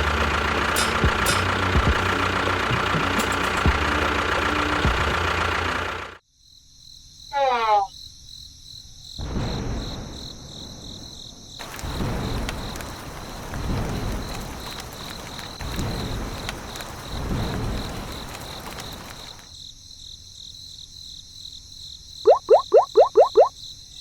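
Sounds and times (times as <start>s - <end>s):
crickets chirping: 6.3s - 24.0s
rushing noise: 11.6s - 19.4s.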